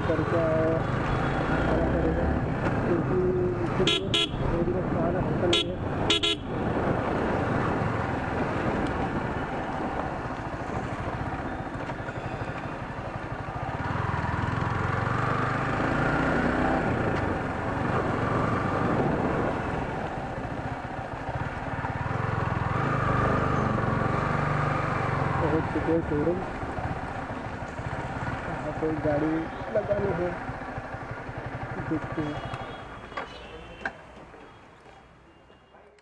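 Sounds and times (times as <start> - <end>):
road noise: 0.0 - 36.0
wind noise: 5.8 - 11.6, 17.2 - 20.4
motorcycle engine running: 6.2 - 33.0.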